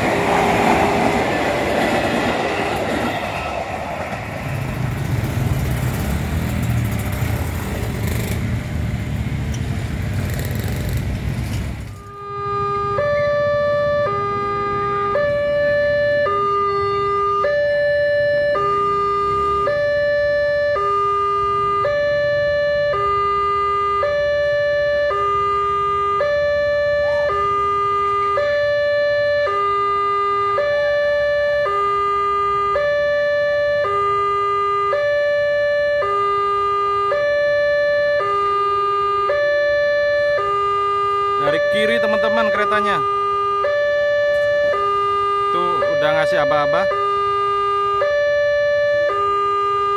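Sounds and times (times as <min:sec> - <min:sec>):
level crossing alarm high and low tone: 0:12.0 - 0:49.9.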